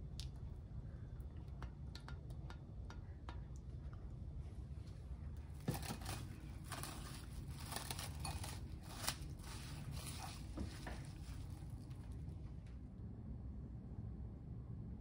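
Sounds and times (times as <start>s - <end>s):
plastic cling wrap crinkling: 5.6s - 12.2s.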